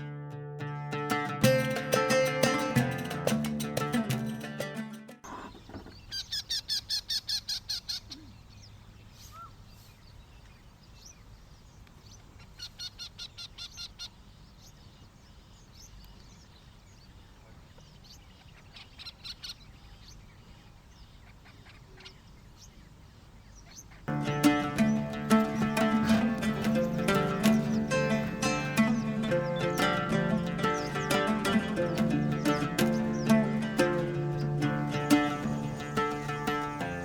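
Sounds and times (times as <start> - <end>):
bird calling rapid notes: 24.1 - 37.0.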